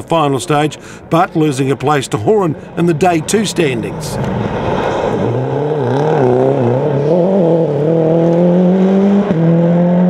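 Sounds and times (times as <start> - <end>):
rally car engine revving: 3.1 - 10.0.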